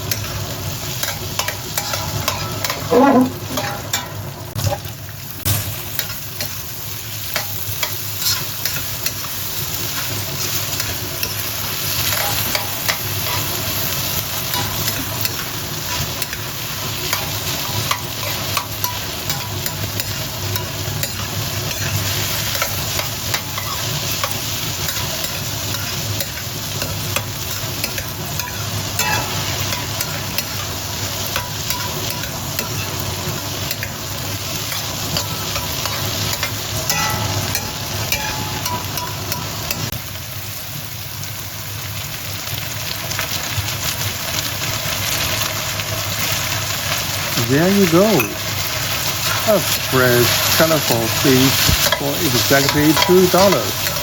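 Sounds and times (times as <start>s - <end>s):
spatula scraping a wok: 0.0s - 4.9s, 7.2s - 39.9s, 48.9s - 54.0s
food sizzling in a wok: 0.0s - 54.0s.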